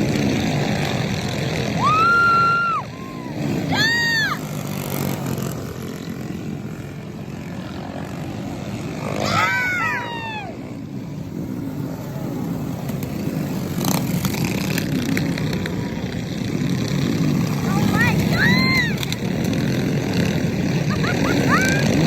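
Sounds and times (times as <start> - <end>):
engine revving: 0.0 - 22.0
small engines racing: 0.0 - 22.0.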